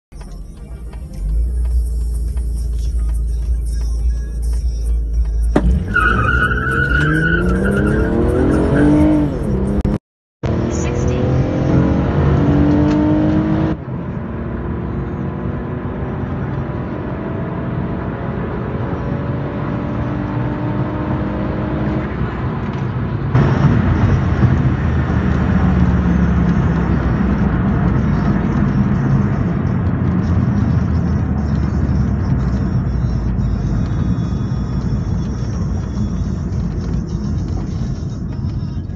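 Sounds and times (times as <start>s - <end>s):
road and wind noise: 0.1s - 38.9s
car engine accelerating: 0.2s - 38.9s.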